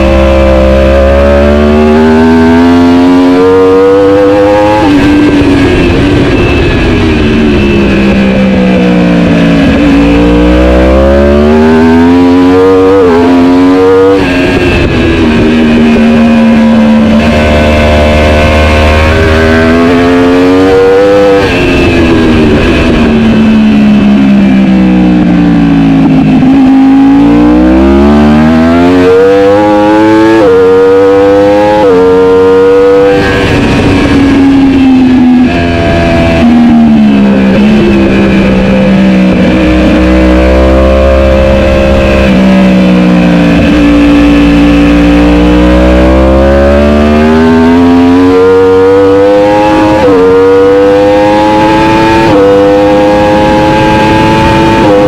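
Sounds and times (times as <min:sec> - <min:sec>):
superbike engine revving: 0:00.0 - 0:55.0.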